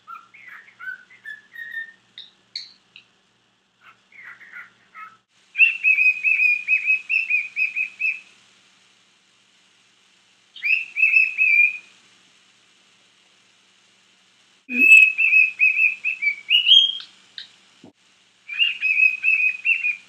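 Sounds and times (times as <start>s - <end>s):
cockatiel whistling and chirping: 0.0s - 3.1s, 3.8s - 8.3s, 10.6s - 11.9s, 14.7s - 17.5s, 18.5s - 20.0s.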